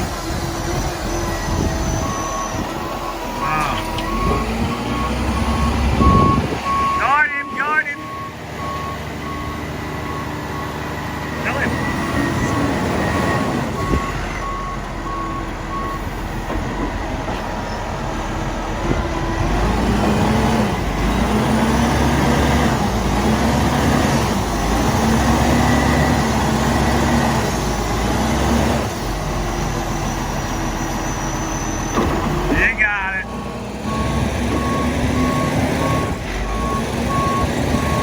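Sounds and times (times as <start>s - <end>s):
truck diesel engine labouring: 0.0s - 38.0s
reversing beeper: 1.0s - 16.9s, 29.9s - 38.0s.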